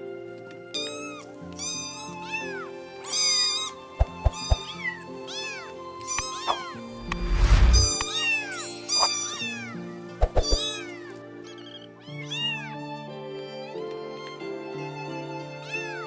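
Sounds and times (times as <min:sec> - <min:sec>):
background music: 0:00.0 - 0:16.0
cat meowing: 0:01.0 - 0:06.8, 0:07.8 - 0:12.8.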